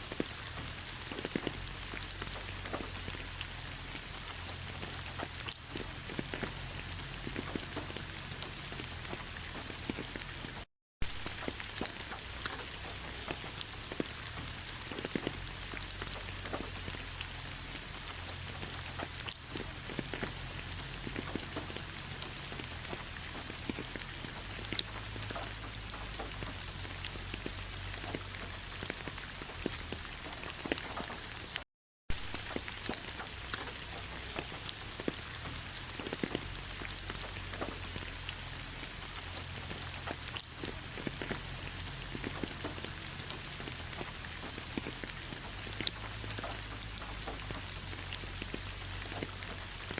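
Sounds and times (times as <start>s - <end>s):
rain pattering on leaves: 0.0s - 49.9s.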